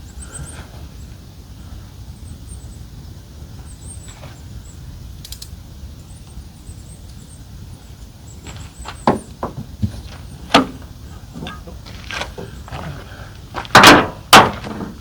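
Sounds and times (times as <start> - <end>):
sharp click: 5.2 - 5.6.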